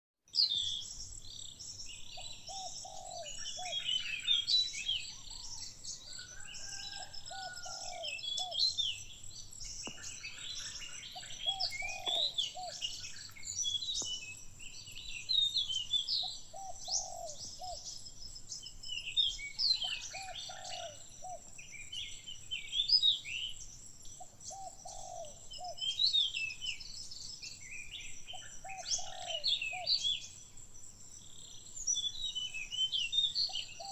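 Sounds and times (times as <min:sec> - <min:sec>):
birds chirping and singing: 0:00.4 - 0:30.5, 0:31.1 - 0:33.9
low bird call: 0:09.9 - 0:13.1.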